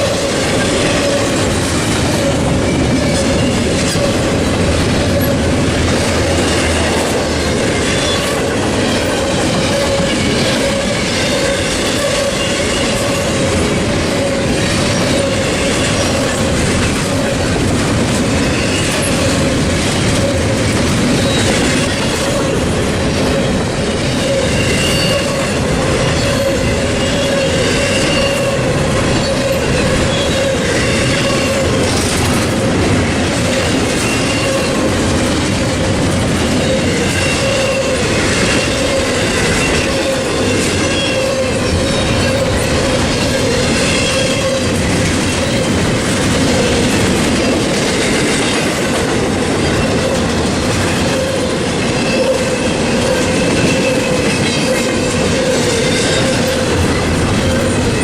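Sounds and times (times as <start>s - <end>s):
freight train cars rolling: 0.0s - 58.0s
wheel squeal: 24.1s - 32.4s, 33.5s - 34.8s, 36.5s - 45.8s.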